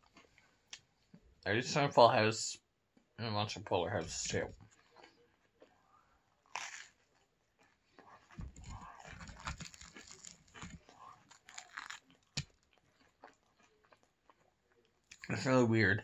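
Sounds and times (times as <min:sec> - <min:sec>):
chewing crispy pizza crust: 0:00.0 - 0:01.2, 0:04.2 - 0:15.5.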